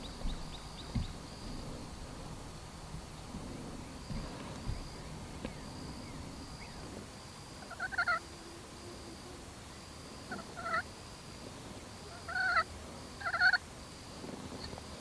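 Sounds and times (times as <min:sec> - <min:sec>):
turkey gobbling: 0:07.7 - 0:08.2, 0:10.3 - 0:10.8, 0:12.2 - 0:12.6, 0:13.2 - 0:13.6.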